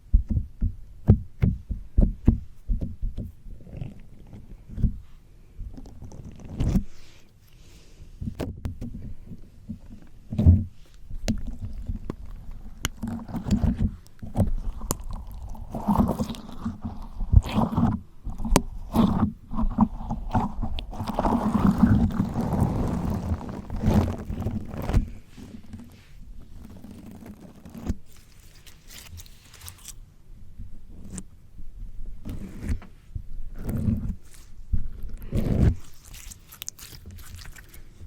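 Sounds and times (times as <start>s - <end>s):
slime squelching: 9.8s - 30.1s, 33.6s - 38.0s.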